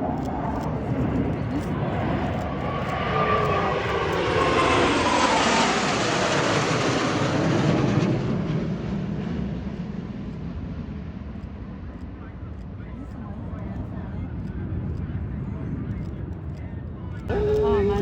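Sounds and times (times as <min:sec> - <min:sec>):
fighter jet flyby: 0:00.0 - 0:11.8.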